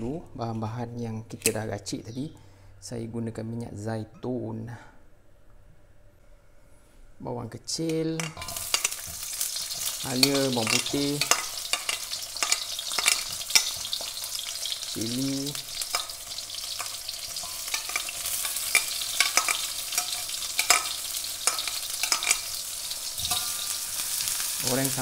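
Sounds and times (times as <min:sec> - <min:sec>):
oil crackling and popping: 0:08.2 - 0:25.0
vegetables sizzling in hot oil: 0:08.2 - 0:25.0.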